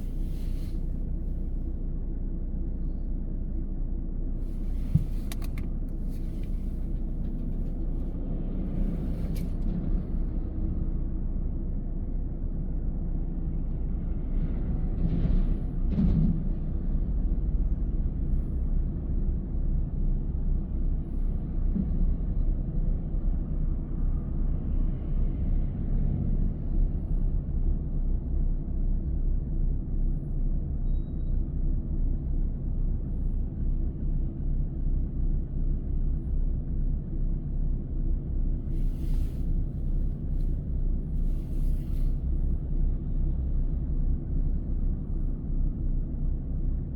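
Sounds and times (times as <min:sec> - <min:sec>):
car tyres and engine rumbling: 0:00.0 - 0:46.9
car bumps: 0:04.6 - 0:06.7.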